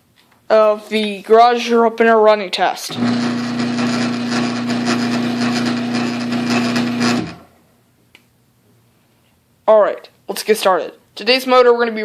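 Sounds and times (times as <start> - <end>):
garage door opener motor: 2.9 - 7.5.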